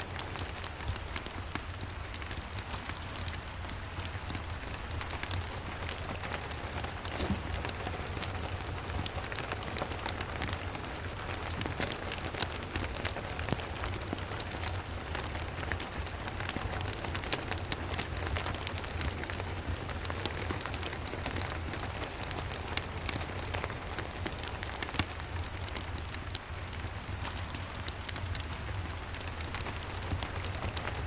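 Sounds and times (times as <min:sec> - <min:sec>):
steady rain: 0:00.0 - 0:31.0
fireplace crackling: 0:04.6 - 0:09.9.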